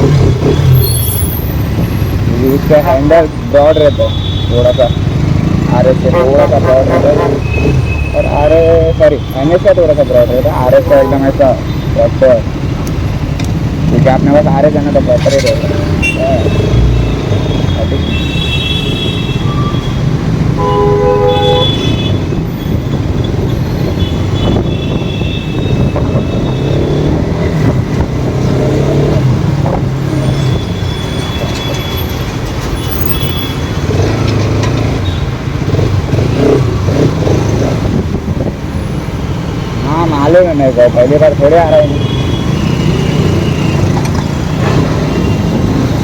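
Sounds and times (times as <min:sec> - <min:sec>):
motorcycle riding: 0:00.0 - 0:46.0
vehicle horn: 0:06.0 - 0:07.6, 0:18.0 - 0:20.0, 0:20.6 - 0:22.3
wind rumble on microphone: 0:22.1 - 0:28.4, 0:37.6 - 0:38.7.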